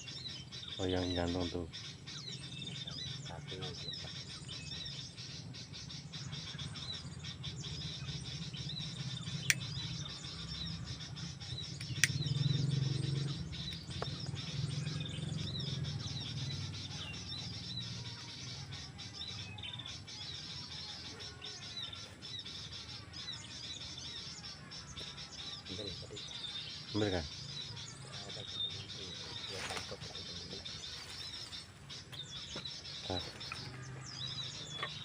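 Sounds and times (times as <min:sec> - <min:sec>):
small birds chirping: 0:00.0 - 0:35.0
sharp clicks: 0:09.4 - 0:09.8, 0:11.8 - 0:12.4.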